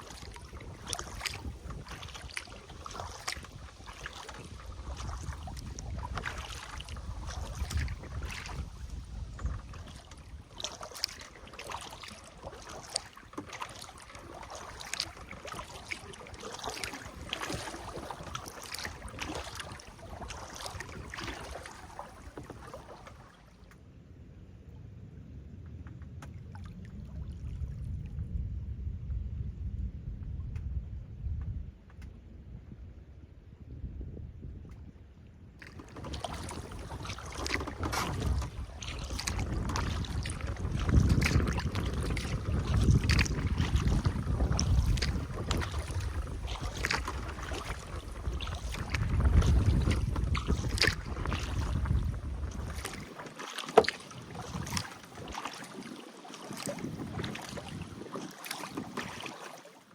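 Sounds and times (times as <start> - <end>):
low wind rumble on microphone: 0.0 - 13.1, 24.1 - 53.2, 53.8 - 55.3, 56.6 - 59.2
paddle splashing water: 0.0 - 23.9, 26.1 - 28.0, 34.6 - 59.9.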